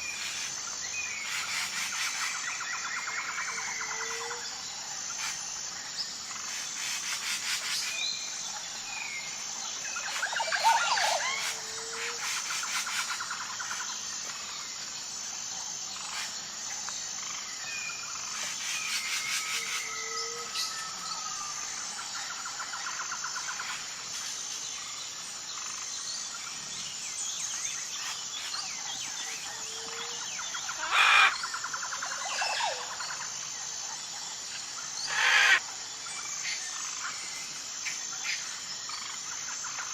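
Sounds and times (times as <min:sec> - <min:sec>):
frogs calling: 0:00.0 - 0:14.7, 0:27.9 - 0:39.9
high pulsing insect tone: 0:00.0 - 0:39.9
birds whistling and trilling: 0:09.9 - 0:12.4, 0:35.0 - 0:35.6
loud animal call: 0:35.1 - 0:35.6.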